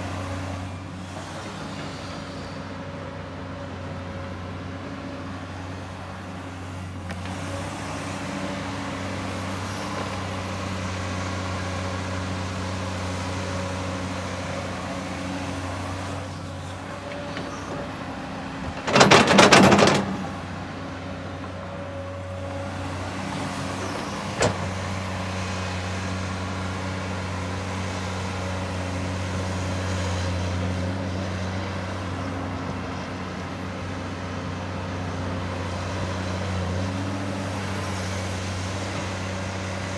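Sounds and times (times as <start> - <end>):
excavator diesel engine running: 0.0 - 39.9
loud rattling clatter: 18.6 - 20.4.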